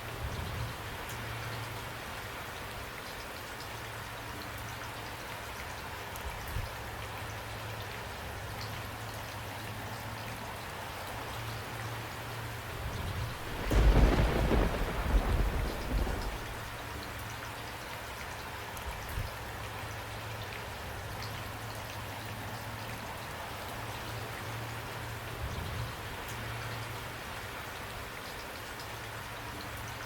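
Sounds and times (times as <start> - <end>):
rain falling: 0.1 - 30.0
thunder rumbling: 12.9 - 17.0.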